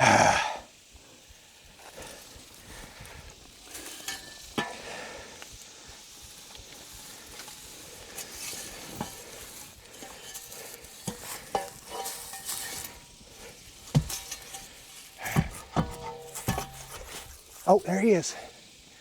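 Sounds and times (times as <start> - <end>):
light metallic clinks: 3.2 - 5.0, 7.3 - 18.6
debris rustling: 6.6 - 18.7.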